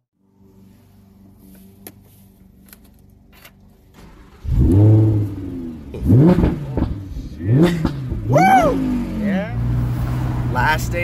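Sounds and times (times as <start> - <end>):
sports car engine revving: 4.1 - 11.0.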